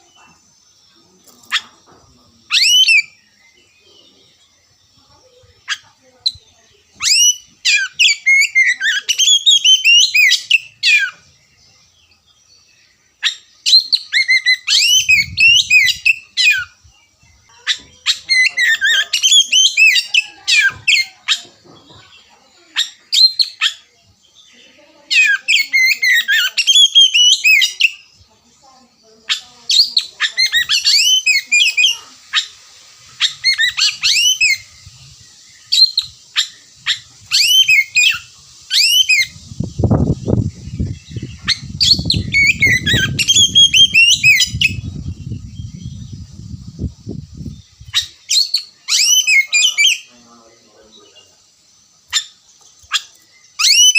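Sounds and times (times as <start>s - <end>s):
bird singing high sweeping notes: 29.0s - 53.9s.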